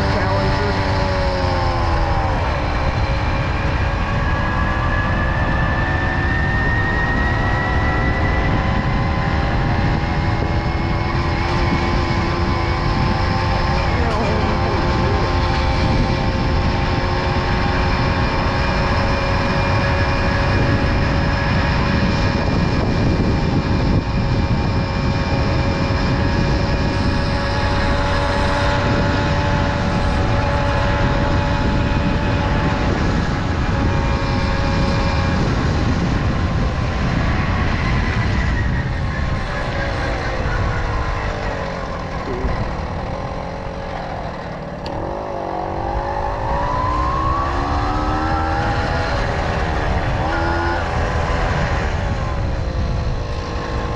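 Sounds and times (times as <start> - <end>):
wind rushing over microphone: 0.0 - 53.9
moped engine running: 11.2 - 18.4, 40.3 - 46.5.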